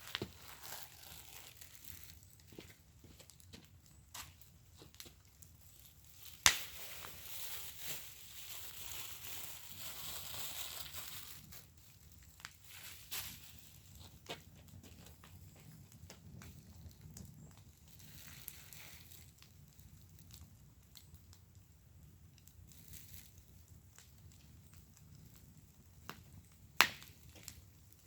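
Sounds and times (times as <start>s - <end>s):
wood fire crackling and popping: 0.0s - 28.0s
fire hissing: 5.9s - 11.9s.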